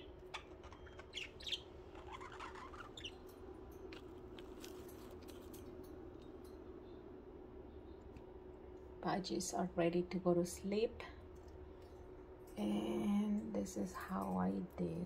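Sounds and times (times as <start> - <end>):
budgies twittering: 0.0 - 3.2
steady low hum: 0.0 - 15.0.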